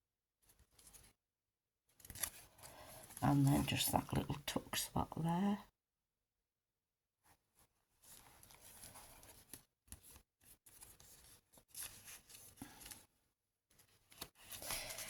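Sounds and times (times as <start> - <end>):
paper rustling: 0.5 - 1.2, 2.0 - 3.2, 8.0 - 13.1, 13.7 - 15.0.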